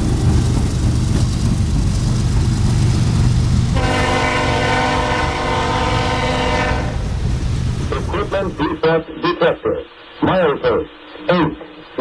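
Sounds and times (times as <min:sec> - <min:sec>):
train rumbling past: 0:00.0 - 0:08.8
locomotive horn chord: 0:03.8 - 0:07.1.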